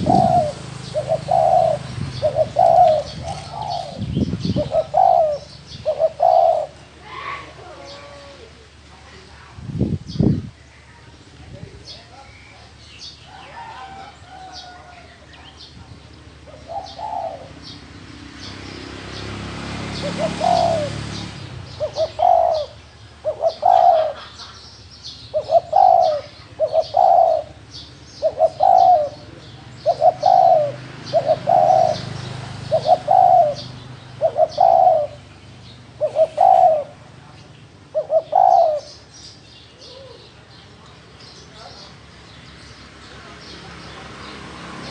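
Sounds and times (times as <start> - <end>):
dove cooing: 0.0 - 8.7, 16.4 - 17.8, 19.9 - 24.6, 25.2 - 35.3, 35.9 - 37.2, 37.8 - 39.1, 39.7 - 40.4
small birds chirping: 0.0 - 44.9.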